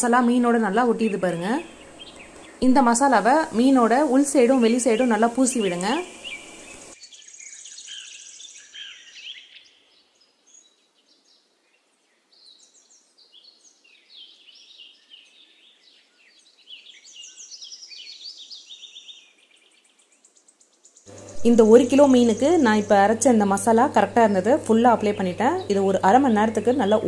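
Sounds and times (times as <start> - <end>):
birds chirping: 0.0 - 9.6, 21.1 - 27.0.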